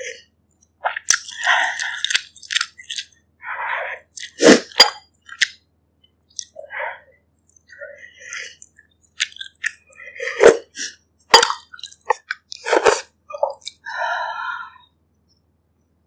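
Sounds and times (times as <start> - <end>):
chewing and wet mouth noises: 0.6 - 3.2, 6.3 - 6.6, 7.4 - 10.0, 11.4 - 13.9.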